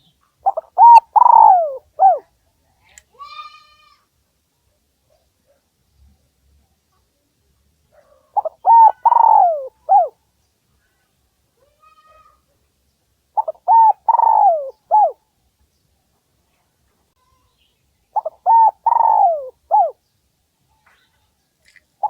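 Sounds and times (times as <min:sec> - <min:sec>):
dove cooing: 0:00.4 - 0:02.3, 0:08.4 - 0:10.2, 0:13.4 - 0:15.2, 0:18.2 - 0:20.0.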